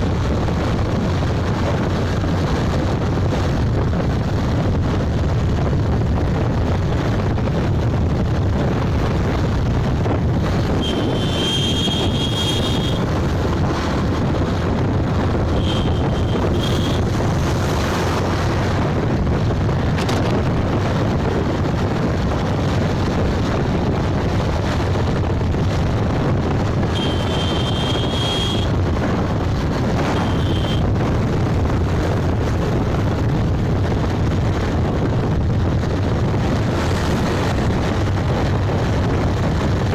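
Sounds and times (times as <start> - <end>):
motorbike engine and road noise: 0.0 - 39.9
wind on microphone: 0.0 - 39.9
short high-pitched beeps: 10.8 - 13.0, 15.6 - 17.0, 26.9 - 28.7, 30.0 - 30.8.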